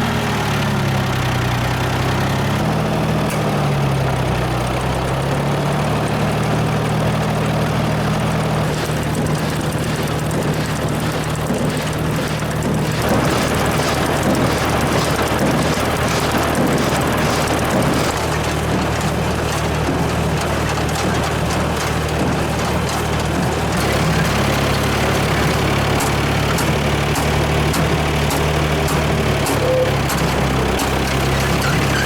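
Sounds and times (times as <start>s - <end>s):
tractor engine running: 0.0s - 32.0s
regular ticking: 9.7s - 32.0s.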